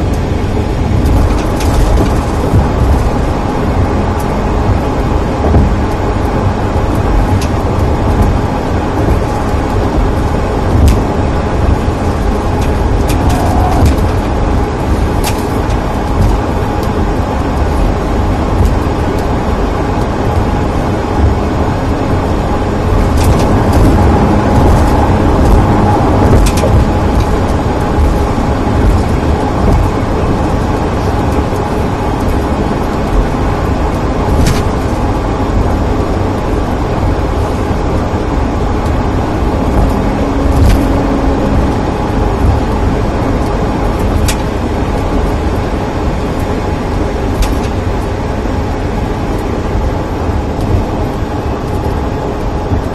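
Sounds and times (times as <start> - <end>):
car cabin road rumble: 0.0 - 52.9
clicks and rattles: 23.0 - 30.0.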